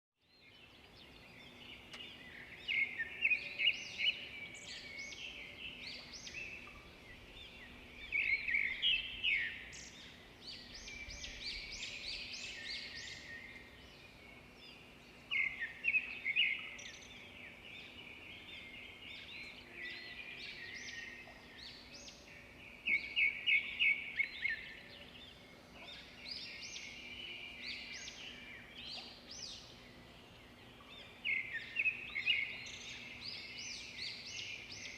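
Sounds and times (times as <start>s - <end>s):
songbirds singing: 0.2s - 34.9s.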